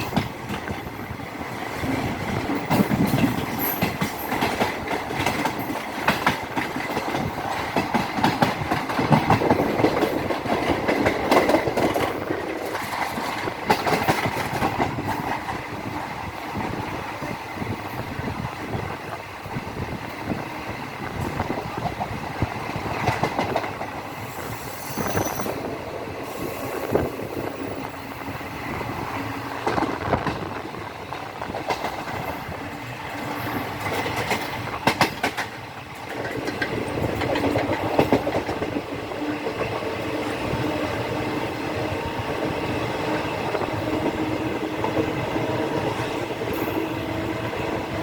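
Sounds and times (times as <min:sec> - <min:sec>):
train wheels rumbling on rails: 0:00.0 - 0:48.0
wheels clicking over rail joints: 0:01.6 - 0:16.0, 0:29.6 - 0:41.9.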